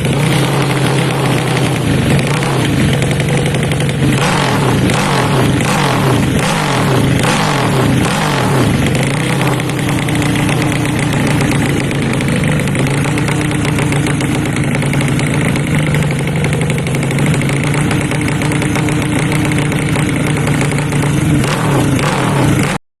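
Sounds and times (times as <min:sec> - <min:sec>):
motorbike engine running: 0:00.0 - 0:22.8.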